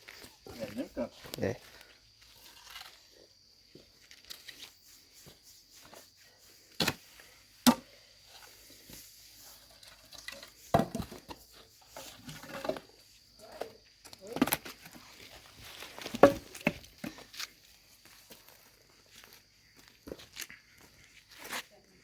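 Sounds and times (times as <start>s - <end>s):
firewood sticks knocking: 7.6s - 7.9s, 10.7s - 11.3s, 16.0s - 17.2s.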